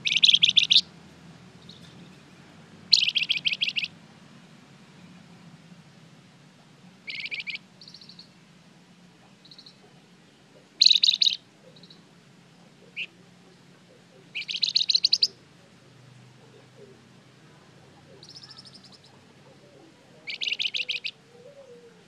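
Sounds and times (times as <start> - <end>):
bird chip call: 0.0 - 0.9, 2.9 - 3.9, 7.1 - 8.3, 10.8 - 12.0, 14.3 - 15.4, 18.1 - 19.1, 20.2 - 21.7
songbird chattering: 0.0 - 0.9, 2.9 - 3.9, 7.0 - 8.4, 9.2 - 15.4, 17.9 - 21.8.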